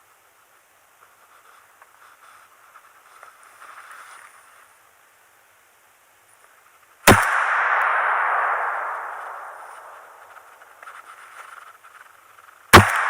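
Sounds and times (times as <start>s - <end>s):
faint rustling: 0.4s - 5.0s
shotgun shot with echo: 7.1s - 10.6s, 12.8s - 13.0s.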